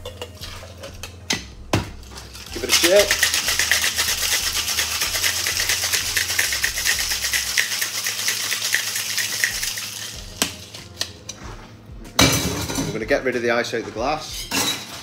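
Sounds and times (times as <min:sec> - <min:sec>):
ice rattling in cocktail shaker: 0:02.2 - 0:10.3.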